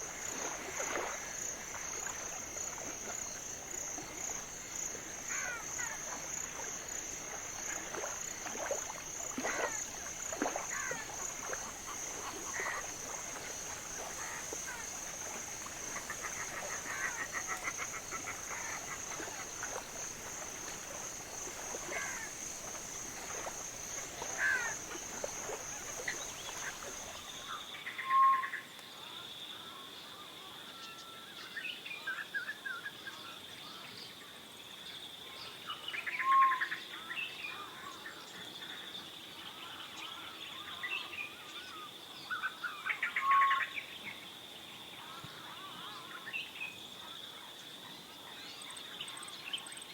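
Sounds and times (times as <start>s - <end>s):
high insect drone: 0.0s - 27.4s
birds calling: 8.9s - 27.4s.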